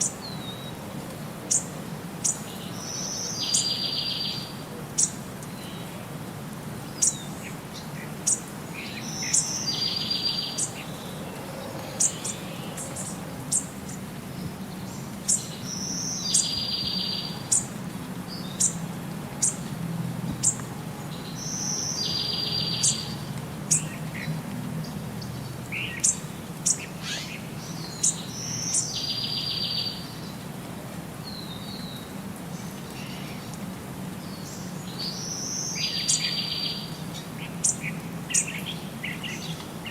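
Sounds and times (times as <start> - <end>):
birds chipping and trilling: 6.8 - 19.7, 20.4 - 30.4.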